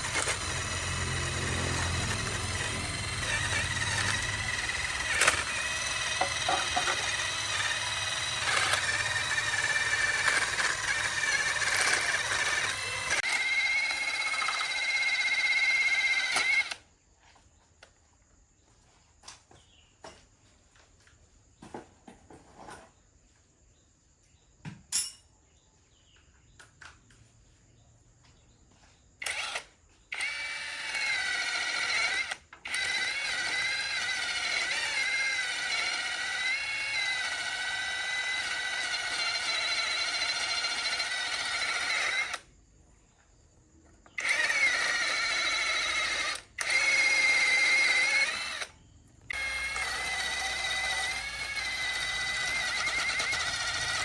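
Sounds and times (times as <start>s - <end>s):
electric power tool whining: 0.0s - 16.9s, 29.2s - 42.5s, 44.1s - 54.0s.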